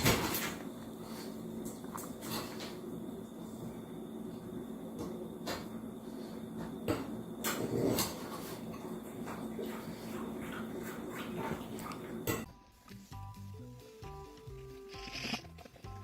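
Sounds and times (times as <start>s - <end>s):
low room hum: 0.0s - 12.5s.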